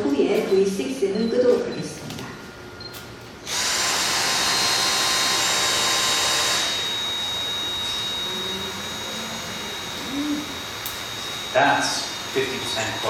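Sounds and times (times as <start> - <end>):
cordless vacuums running: 3.4 - 13.0.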